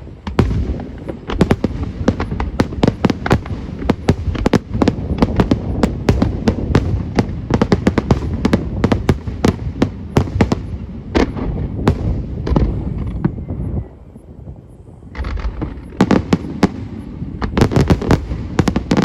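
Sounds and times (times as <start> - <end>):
fireworks bursts and crackling: 0.0 - 19.0.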